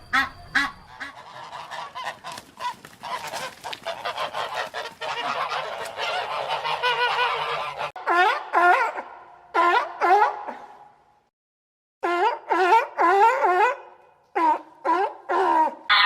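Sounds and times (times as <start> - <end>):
geese honking: 0.0 - 8.5.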